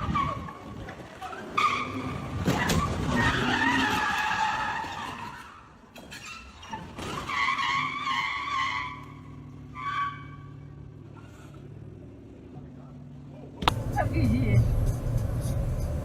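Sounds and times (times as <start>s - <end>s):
car tyres screeching: 0.0s - 12.0s.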